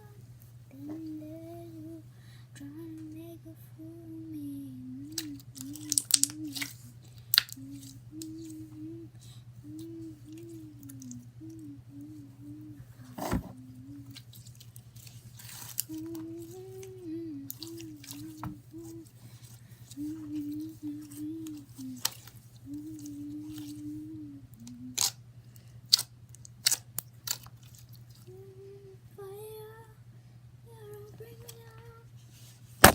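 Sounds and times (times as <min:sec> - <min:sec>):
girl humming: 0:00.0 - 0:14.2, 0:15.8 - 0:19.2, 0:19.9 - 0:25.1, 0:28.3 - 0:30.0, 0:30.7 - 0:32.1.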